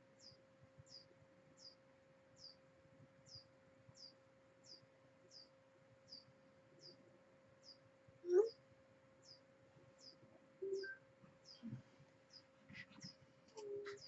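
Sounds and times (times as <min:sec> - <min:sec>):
small bird chirping: 0:00.0 - 0:08.6, 0:09.2 - 0:14.0
faint steady hum: 0:00.0 - 0:14.0.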